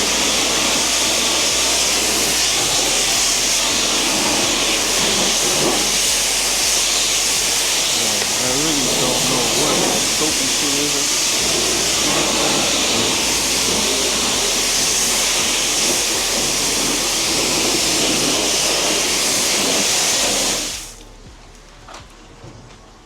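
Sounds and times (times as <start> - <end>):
water spraying from nozzle: 0.0 - 21.2.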